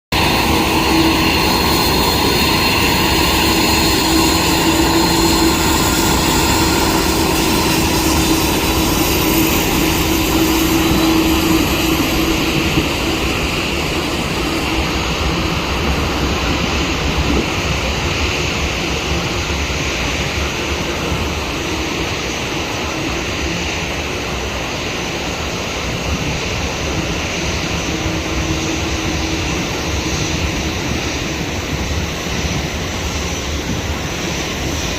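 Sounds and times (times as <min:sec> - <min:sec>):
high whine falling in pitch: 0:00.1 - 0:16.8
jet engines passing: 0:00.1 - 0:34.9.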